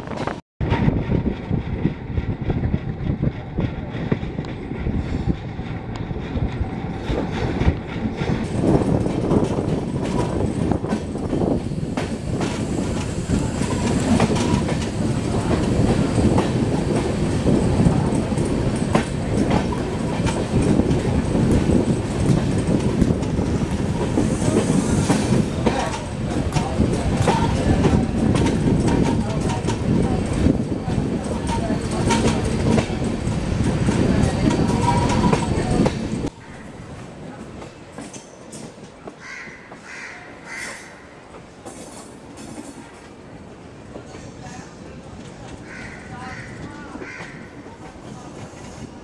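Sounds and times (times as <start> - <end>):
train coach rumble: 0.0 - 49.0
wheels clickety-clack: 0.1 - 36.3.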